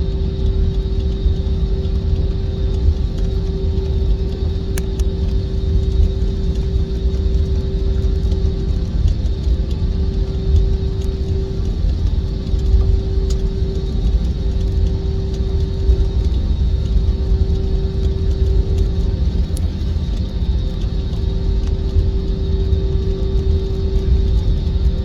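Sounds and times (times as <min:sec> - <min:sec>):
jet engines rumbling and whining: 0:00.0 - 0:25.0.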